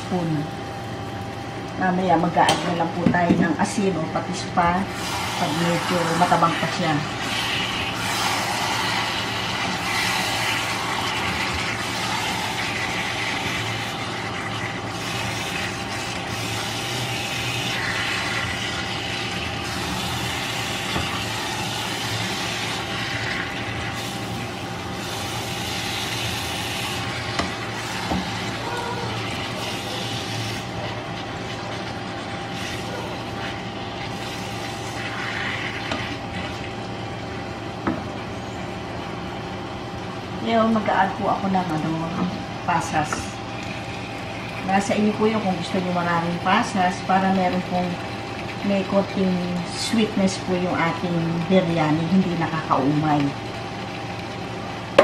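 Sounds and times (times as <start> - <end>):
chicken sizzling in a wok: 5.0 - 36.6.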